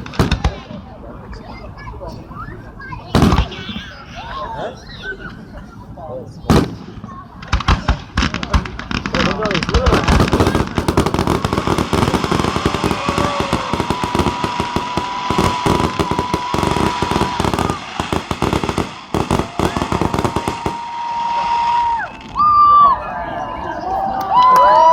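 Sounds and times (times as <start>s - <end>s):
fireworks bangs and crackles: 0.0s - 1.6s, 3.1s - 4.0s, 6.4s - 22.6s.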